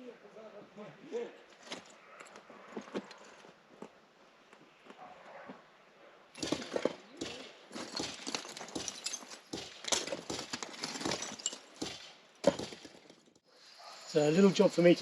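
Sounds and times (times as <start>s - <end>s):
hard objects knocking and clattering: 6.4s - 13.4s.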